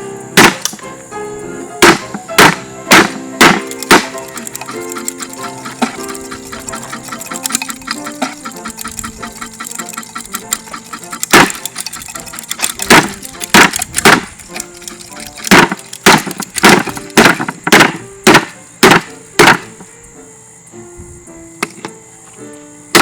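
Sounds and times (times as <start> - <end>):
ceiling fan being smashed: 0.4 - 0.8, 1.8 - 4.4, 11.2 - 11.8, 12.8 - 19.7.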